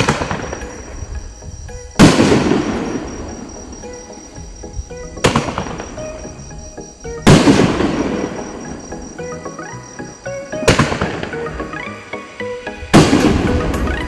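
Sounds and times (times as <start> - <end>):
firework booms: 0.0 - 1.0, 1.9 - 3.4, 7.2 - 8.7, 12.9 - 14.0
background music: 0.0 - 14.0.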